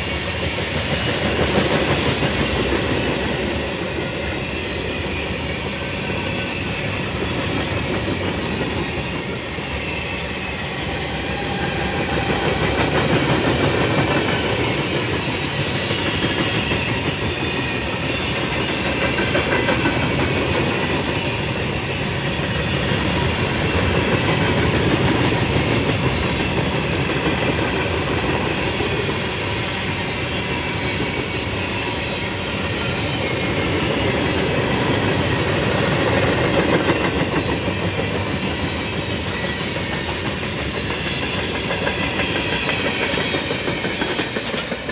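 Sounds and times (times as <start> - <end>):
train wheels rumbling on rails: 0.0 - 44.9
faint wheel squeal: 41.0 - 44.7.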